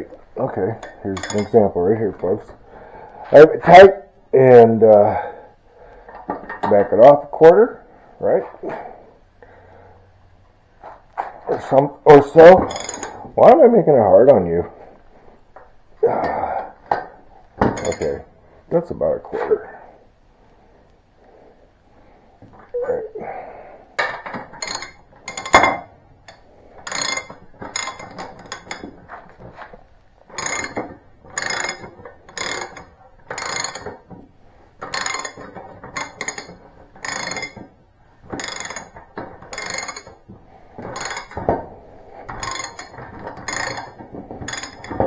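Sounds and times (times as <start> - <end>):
sharp metallic clicks and clinks: 0.8 - 1.6, 12.5 - 13.2, 17.6 - 18.2, 24.6 - 29.0, 30.4 - 34.0, 34.8 - 37.7, 38.3 - 40.2, 40.9 - 41.6, 42.3 - 45.0.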